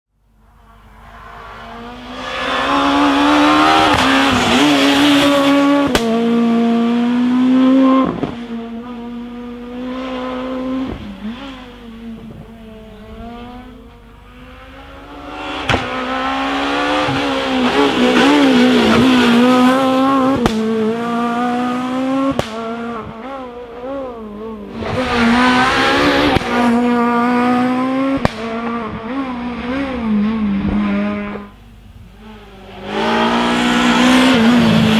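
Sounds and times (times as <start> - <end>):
rally car engine revving: 0.5 - 34.9
sharp exhaust pops: 15.6 - 16.0, 18.2 - 20.9, 22.3 - 23.3, 28.1 - 29.1.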